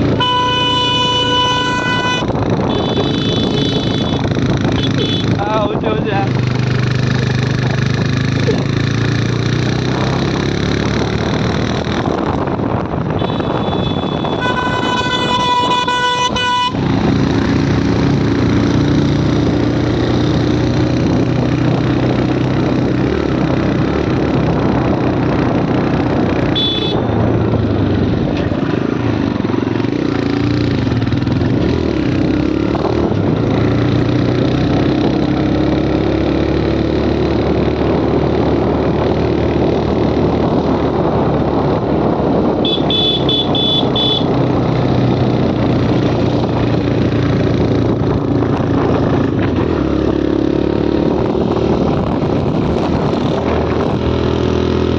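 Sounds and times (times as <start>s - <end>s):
motorcycle engine running: 0.0s - 54.9s
road and wind noise: 0.0s - 54.9s
vehicle horn: 0.1s - 4.2s, 4.8s - 5.4s, 13.2s - 17.0s, 26.5s - 27.2s, 42.6s - 44.4s.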